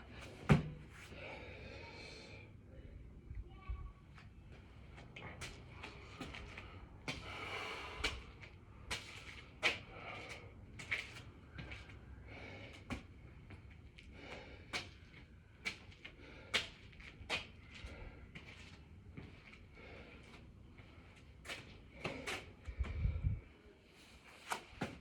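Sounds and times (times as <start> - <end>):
heavy breathing: 1.0 - 3.1, 5.2 - 8.5, 11.5 - 13.2, 19.6 - 21.0, 21.8 - 23.5.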